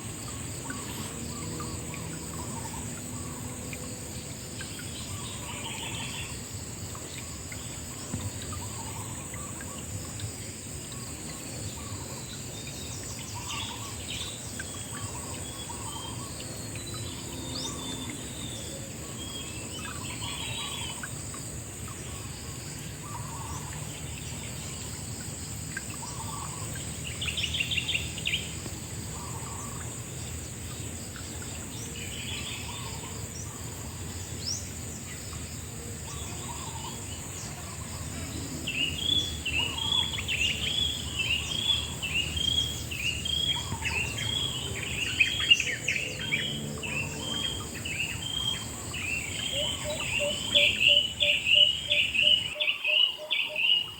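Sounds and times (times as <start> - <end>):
birds calling: 7.0 - 53.9
trilled bird call: 47.3 - 53.9.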